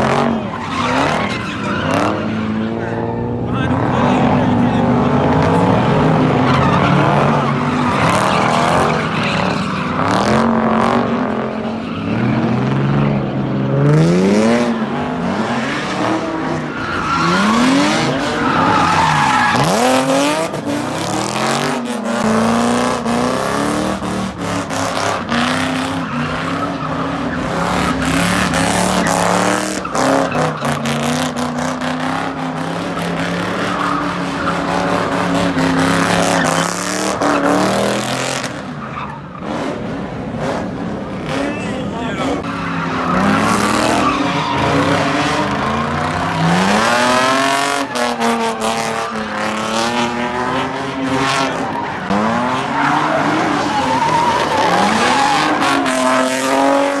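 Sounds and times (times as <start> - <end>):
tyres squealing: 0.0 - 13.0, 14.4 - 57.0
car engines revving: 0.0 - 57.0.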